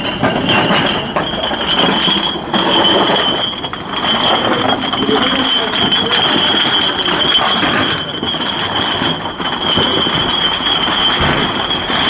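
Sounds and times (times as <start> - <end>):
metallic clinking and knocking: 0.0 - 12.0.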